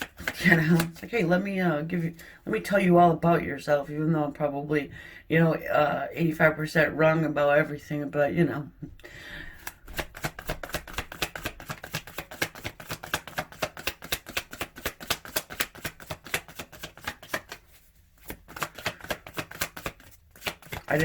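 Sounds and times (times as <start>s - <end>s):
cards being shuffled: 0.0s - 1.4s, 9.6s - 21.0s.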